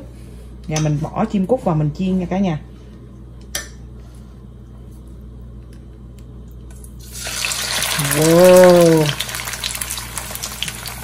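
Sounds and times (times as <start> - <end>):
meat sizzling in hot oil: 7.0 - 11.0.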